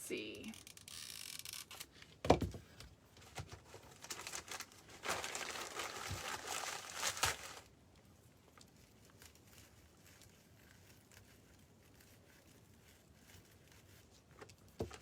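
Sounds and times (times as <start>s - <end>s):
wood wool rustling and crackling: 3.1s - 15.0s.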